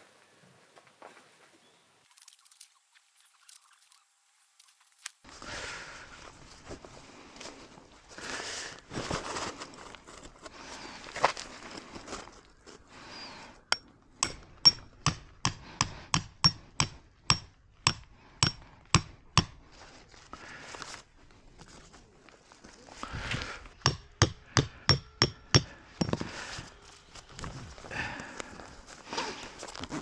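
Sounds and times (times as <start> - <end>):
footsteps: 2.0 - 5.3
rustling: 2.0 - 5.5, 6.1 - 13.1
hammer striking tent peg: 13.7 - 19.6, 23.8 - 26.2.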